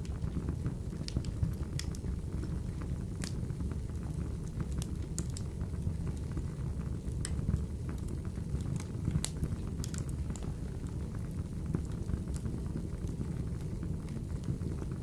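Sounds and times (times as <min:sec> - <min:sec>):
low rumble of flames: 0:00.0 - 0:15.0
wood fire crackling and popping: 0:00.0 - 0:15.0.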